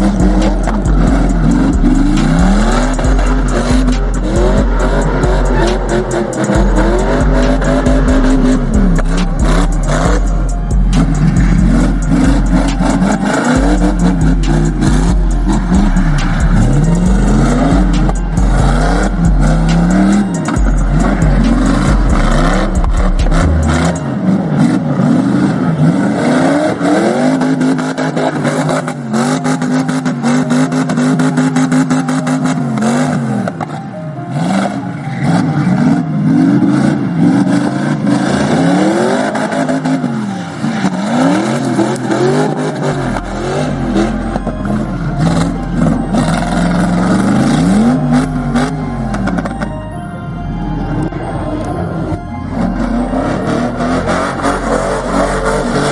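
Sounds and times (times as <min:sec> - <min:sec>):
deep thumping bass music: 0:00.0 - 0:24.8, 0:41.1 - 0:49.9, 0:52.2 - 0:55.9
car engines revving: 0:00.0 - 0:49.9, 0:50.5 - 0:55.9.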